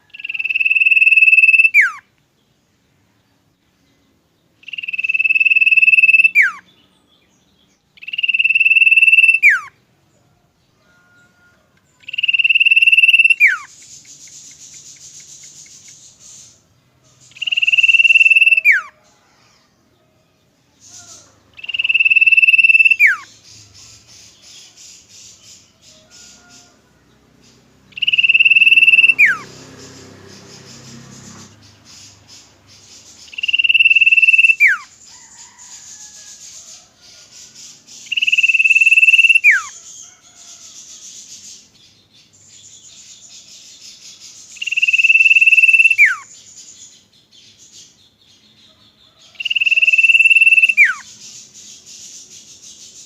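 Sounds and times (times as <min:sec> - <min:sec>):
bird whistle with falling slur: 0:00.2 - 0:02.0, 0:04.7 - 0:06.6, 0:08.0 - 0:09.7, 0:12.1 - 0:16.0, 0:17.3 - 0:19.0, 0:21.1 - 0:23.3, 0:28.0 - 0:29.5, 0:33.3 - 0:34.9, 0:38.1 - 0:39.8, 0:44.6 - 0:46.3, 0:49.4 - 0:51.1.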